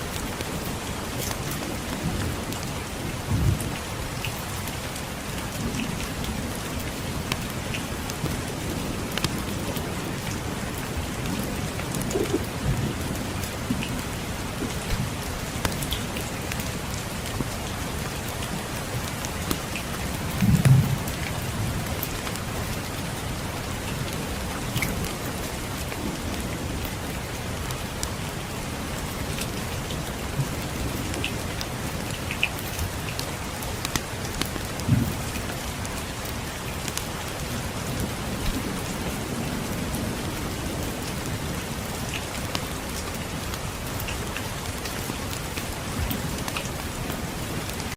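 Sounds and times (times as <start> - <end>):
steady rain: 0.0 - 47.9
distant thunder rumble: 5.6 - 17.9, 20.1 - 22.0, 34.8 - 36.0
small sharp ticks and crackles: 11.8 - 12.5, 31.1 - 35.6.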